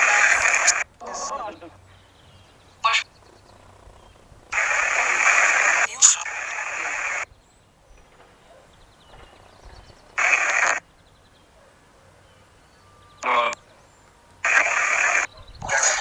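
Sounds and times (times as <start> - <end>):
radio static bursts: 0.0 - 1.6, 2.8 - 7.3, 10.1 - 10.8, 13.2 - 13.6, 14.4 - 16.0.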